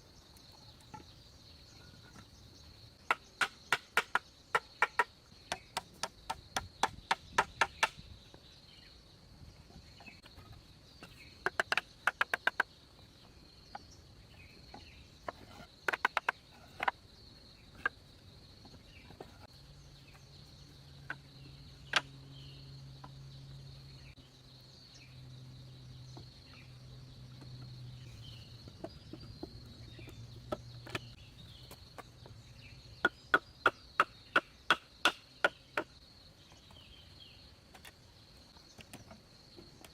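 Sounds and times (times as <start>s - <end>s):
hand tool striking wood: 3.1s - 8.0s.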